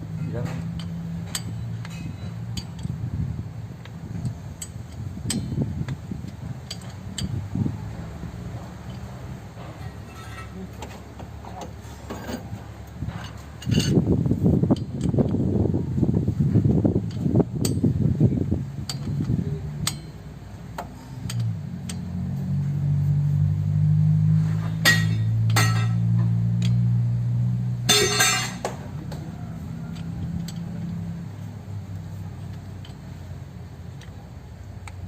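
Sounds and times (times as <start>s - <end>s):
steady low hum: 0.0s - 35.0s
metal tools clinking: 0.1s - 3.0s, 4.1s - 7.4s, 8.8s - 14.0s, 24.5s - 26.8s, 27.9s - 28.7s.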